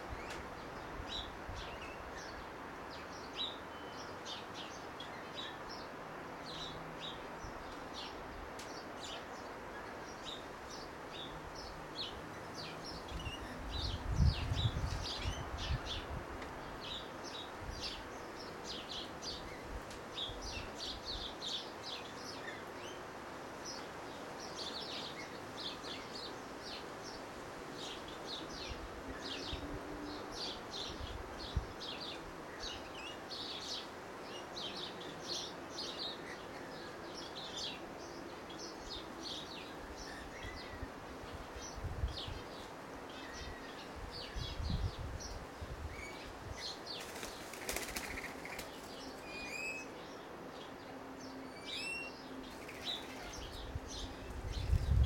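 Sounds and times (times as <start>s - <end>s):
birds chirping: 27.8s - 55.0s.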